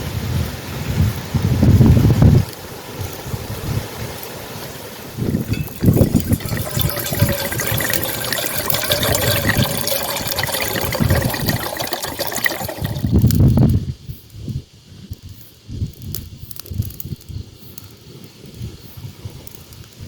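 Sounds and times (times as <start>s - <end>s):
running water: 5.1s - 13.5s.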